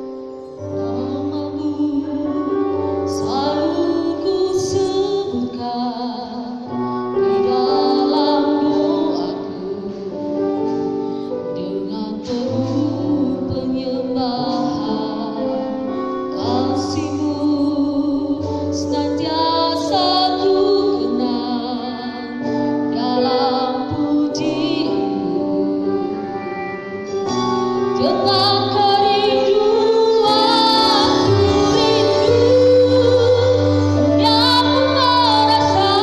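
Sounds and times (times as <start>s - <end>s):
song with female vocals: 0.6s - 36.0s.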